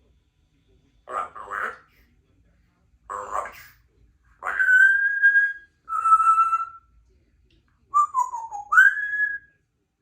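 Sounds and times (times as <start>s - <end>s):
parrot whistling: 4.4s - 6.9s, 8.0s - 9.5s.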